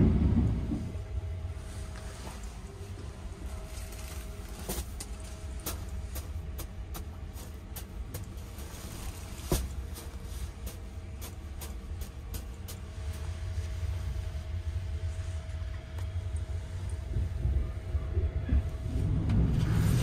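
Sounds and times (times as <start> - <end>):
train rumble inside compartment: 0.0 - 20.0.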